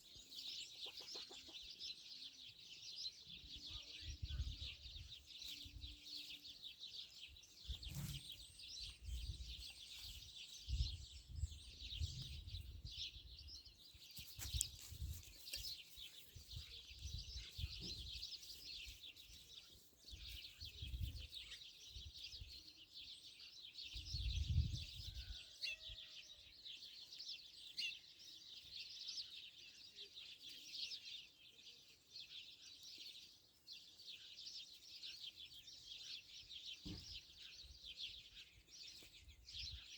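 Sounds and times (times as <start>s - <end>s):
many birds chirping: 0.0s - 39.9s.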